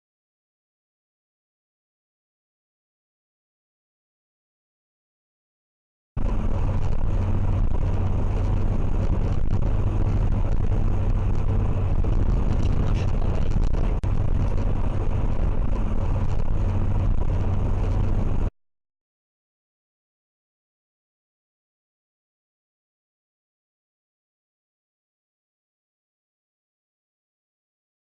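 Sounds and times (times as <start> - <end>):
road noise: 6.2 - 18.5
vehicle rumble: 6.2 - 18.5.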